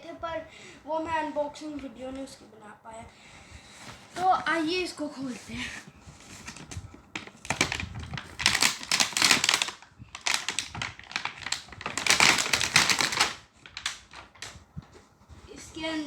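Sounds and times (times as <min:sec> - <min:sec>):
packaging tearing and crackling: 0:07.2 - 0:14.5.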